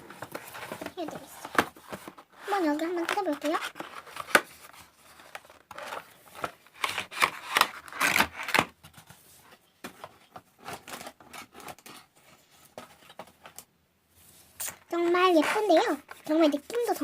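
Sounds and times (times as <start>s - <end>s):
packaging being torn open: 6.8s - 8.7s.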